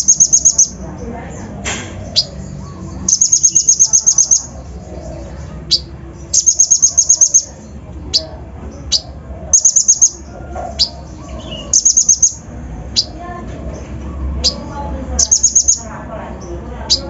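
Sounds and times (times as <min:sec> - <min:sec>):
bird singing fast high trills: 0:00.0 - 0:00.8, 0:03.0 - 0:04.6, 0:05.7 - 0:07.5, 0:09.6 - 0:10.2, 0:10.8 - 0:13.1, 0:15.2 - 0:15.9.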